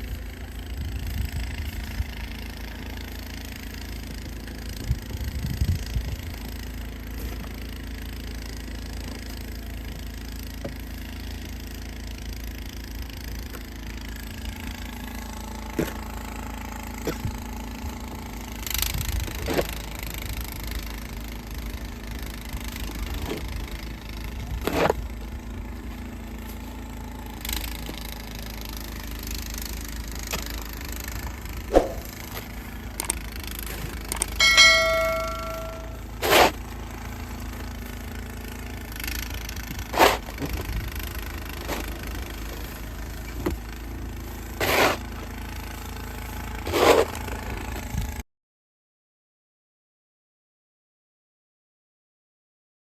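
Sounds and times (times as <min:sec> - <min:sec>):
low steady rumble: 0:20.0 - 0:48.2
knocks and scrapes: 0:31.7 - 0:36.7, 0:39.9 - 0:40.7, 0:44.6 - 0:45.1, 0:46.7 - 0:47.2
metal struck with a clang: 0:34.4 - 0:36.0.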